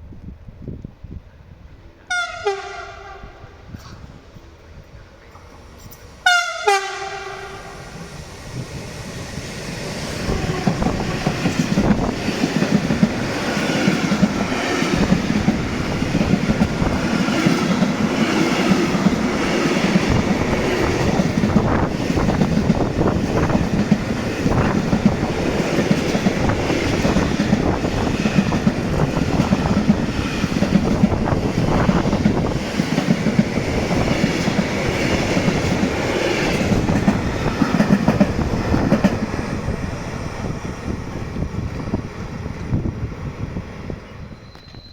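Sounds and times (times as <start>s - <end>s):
train horn blast: 2.1s - 3.7s, 6.2s - 7.9s, 10.2s - 11.5s.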